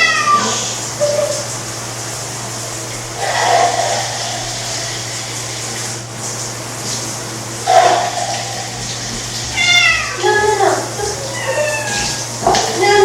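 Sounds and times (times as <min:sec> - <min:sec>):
cat meowing: 0:00.0 - 0:00.6, 0:09.5 - 0:10.2, 0:11.0 - 0:12.3
shower water running: 0:00.0 - 0:13.0.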